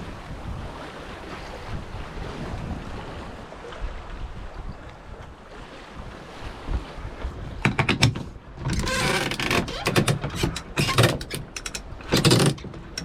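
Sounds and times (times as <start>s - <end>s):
deck winch ratcheting clicks: 7.7s - 13.0s
winch grinding: 7.7s - 13.0s.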